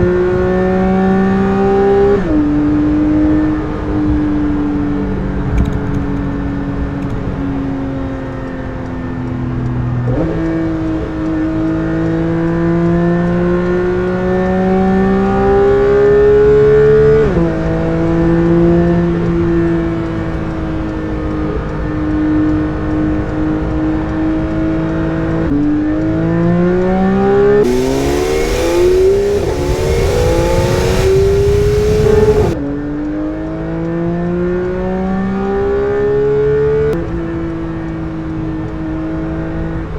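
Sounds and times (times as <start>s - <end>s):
car engine driven hard: 27.6s - 32.6s
hiss: 27.6s - 32.6s.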